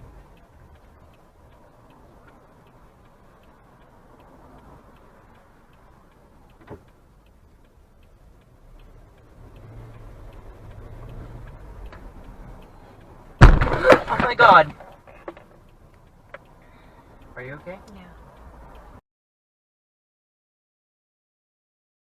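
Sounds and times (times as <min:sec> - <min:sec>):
low engine hum: 0:00.0 - 0:14.4
turn signal ticking: 0:00.0 - 0:19.0.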